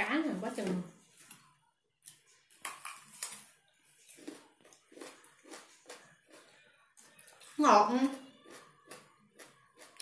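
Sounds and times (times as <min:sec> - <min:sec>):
person chewing radish crunches: 0:02.0 - 0:07.6, 0:08.3 - 0:10.0.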